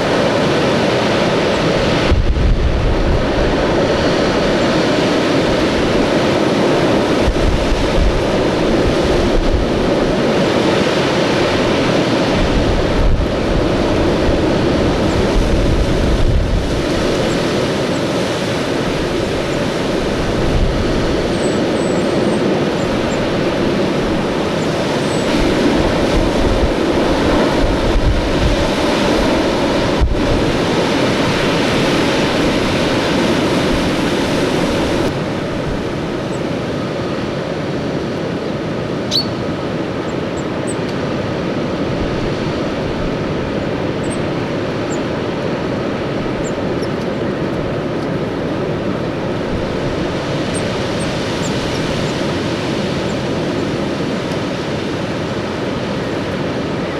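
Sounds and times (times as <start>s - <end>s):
strong wind gusts: 0.0s - 56.9s
faint bird chirps: 39.1s - 39.4s.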